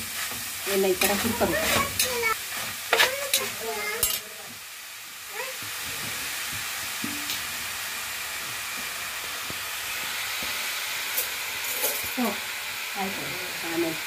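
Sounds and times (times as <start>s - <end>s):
metal spatula scraping a pan: 0.0s - 4.2s
food sizzling in a pan: 0.0s - 14.0s.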